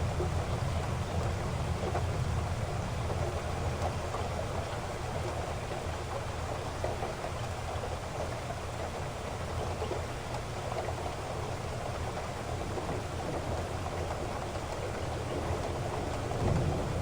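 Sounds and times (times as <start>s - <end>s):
heavy rain falling: 11.7s - 17.0s.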